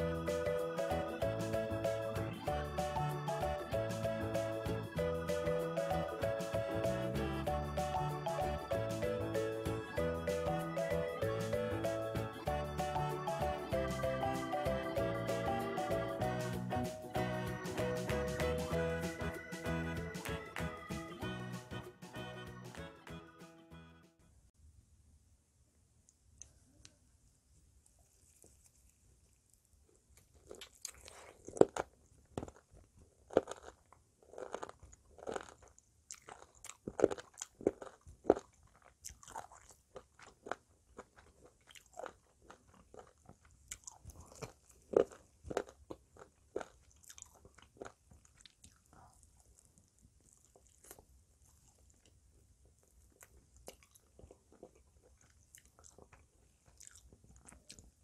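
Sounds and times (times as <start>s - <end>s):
biting and chewing ribs: 28.2s - 58.0s.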